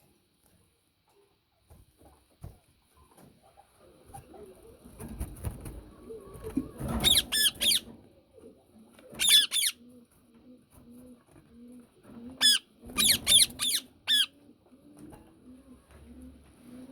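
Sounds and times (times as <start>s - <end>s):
parakeet screeching: 7.0s - 7.8s, 9.2s - 9.8s, 12.4s - 14.3s.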